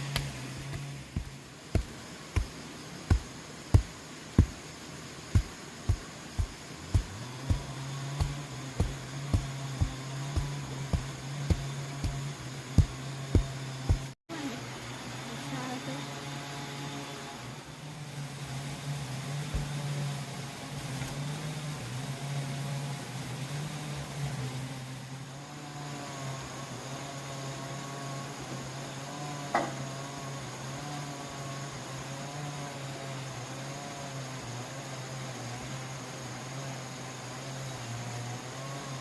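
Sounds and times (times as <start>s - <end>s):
motor humming: 0.0s - 24.3s.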